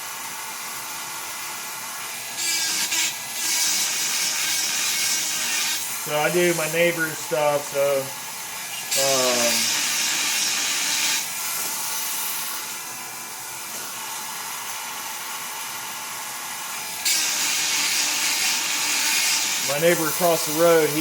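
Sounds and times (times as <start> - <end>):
chainsaw sharpener whining: 2.1 - 12.7, 16.7 - 21.0
grinding bit rasping on chain: 2.4 - 5.9, 8.8 - 11.3, 17.0 - 21.0.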